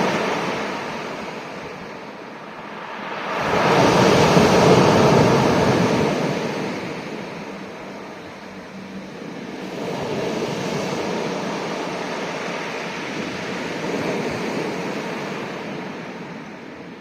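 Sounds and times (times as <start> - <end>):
waves washing onto rocky shore: 0.0 - 8.0.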